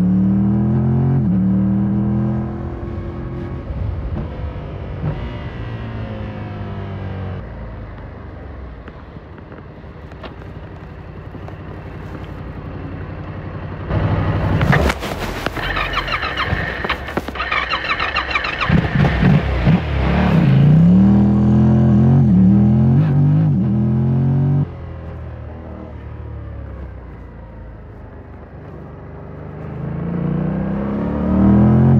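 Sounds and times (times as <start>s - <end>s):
motorcycle engine revving: 13.6s - 27.0s, 28.5s - 31.9s.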